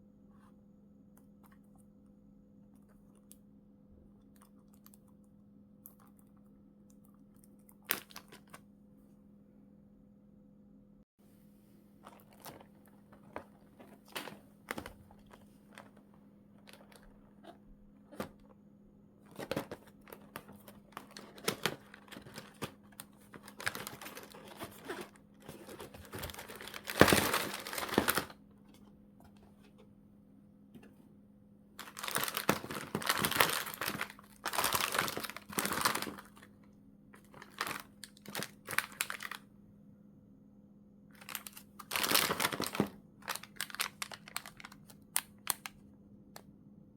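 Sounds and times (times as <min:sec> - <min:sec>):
faint low hum: 0:00.0 - 0:46.9
plastic bags crinkling: 0:12.0 - 0:18.4, 0:19.3 - 0:28.4, 0:31.8 - 0:36.6, 0:37.2 - 0:39.4, 0:41.2 - 0:45.6.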